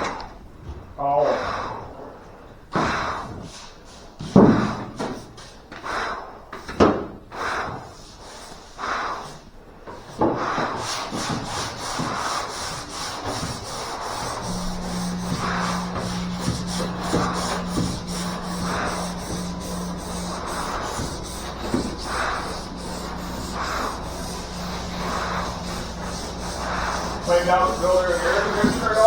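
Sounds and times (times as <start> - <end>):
sandpaper rubbing on metal panel: 10.6 - 29.0
steady low hum: 11.8 - 29.0.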